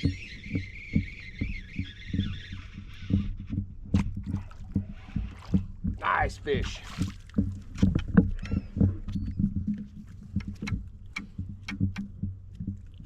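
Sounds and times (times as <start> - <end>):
knocks and taps on kayak hull: 7.0 - 12.8.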